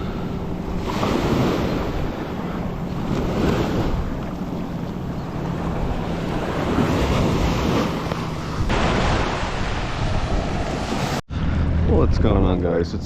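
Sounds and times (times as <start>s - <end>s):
wind buffeting microphone: 0.0s - 12.9s
ocean surf washing on beach: 5.4s - 11.2s.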